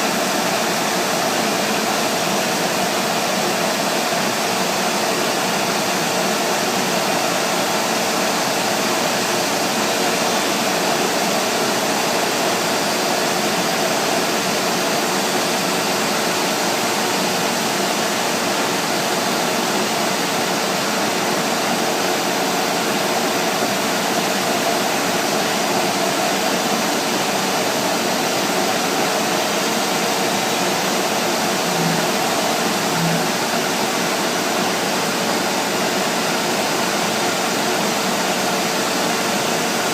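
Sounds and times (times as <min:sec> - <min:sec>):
router machining wood: 0:26.7 - 0:35.4
faint steady hum: 0:29.8 - 0:34.7.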